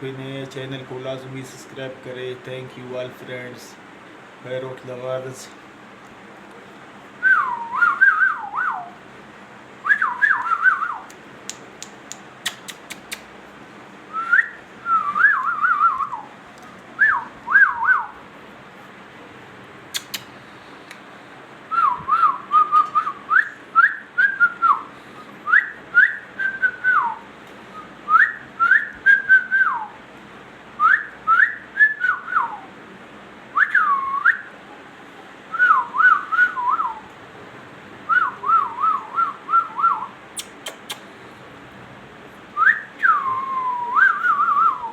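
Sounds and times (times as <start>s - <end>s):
parrot whistling a tune: 7.2s - 9.0s, 9.8s - 11.2s, 14.1s - 16.3s, 17.0s - 18.2s, 21.7s - 24.9s, 25.5s - 27.2s, 27.8s - 30.0s, 30.8s - 32.6s, 33.6s - 34.5s, 35.5s - 37.1s, 38.1s - 40.8s, 42.6s - 44.9s.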